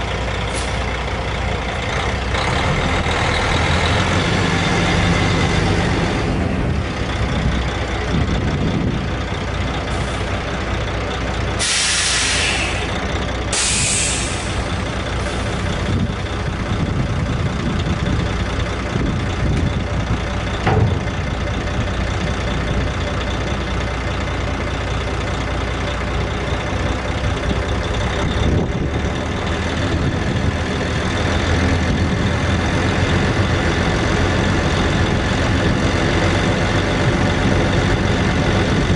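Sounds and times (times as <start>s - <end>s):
diesel truck engine idling: 0.0s - 38.9s
air brake hiss: 0.5s - 0.8s, 11.6s - 14.7s.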